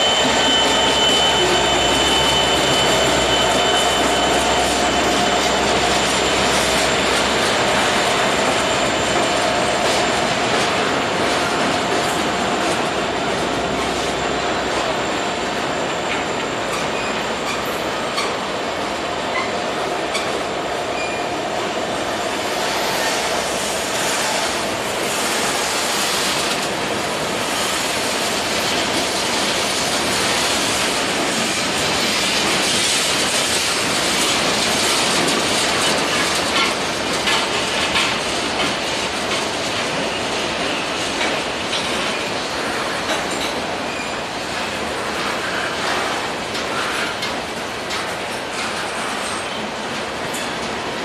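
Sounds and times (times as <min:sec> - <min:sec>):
faint high wheel squeal: 0:00.0 - 0:09.8, 0:13.8 - 0:18.4, 0:20.9 - 0:21.4, 0:43.8 - 0:44.3
train wheels clacking over rails: 0:00.0 - 0:51.0.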